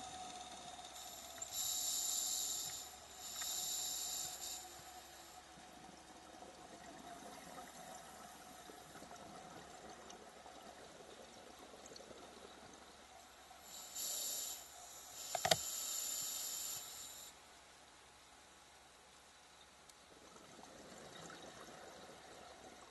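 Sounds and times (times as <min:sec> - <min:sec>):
regulator breath and bubbles: 0:00.0 - 0:12.9
faint steady hum: 0:00.0 - 0:22.9.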